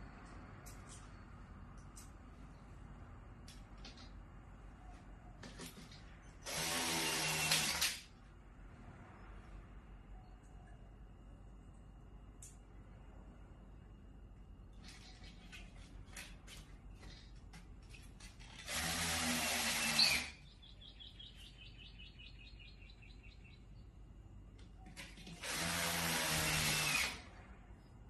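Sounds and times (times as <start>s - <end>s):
small electric motor running: 6.5s - 8.0s, 18.5s - 20.4s, 25.4s - 27.2s.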